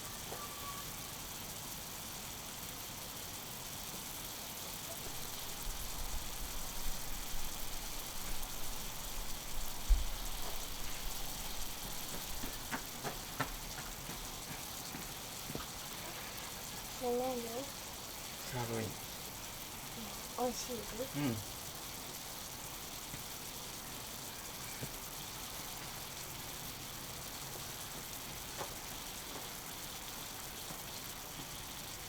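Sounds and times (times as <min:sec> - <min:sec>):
steak sizzling on a griddle: 0:00.0 - 0:32.0
thump: 0:09.9 - 0:10.6.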